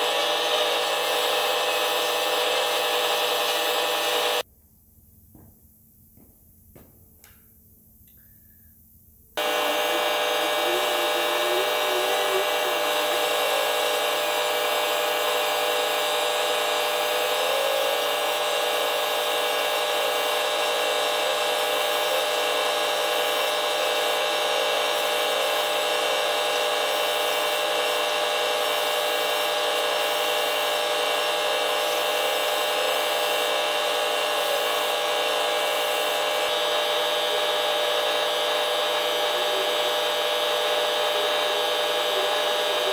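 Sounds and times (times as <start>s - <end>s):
power sander sanding metal: 0.0s - 4.4s, 9.4s - 42.9s.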